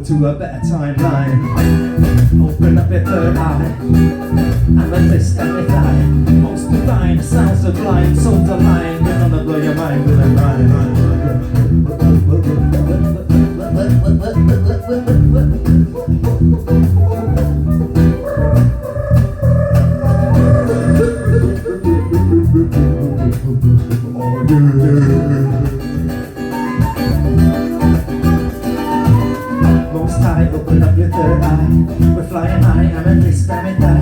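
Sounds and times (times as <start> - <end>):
bass guitar: 0.0 - 34.0
electric guitar: 1.0 - 34.0
steady drum beat: 1.0 - 34.0.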